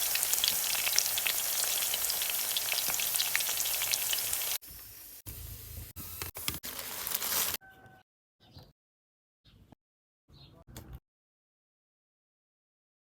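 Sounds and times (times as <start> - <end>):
food sizzling in a hot pan: 0.0 - 5.2.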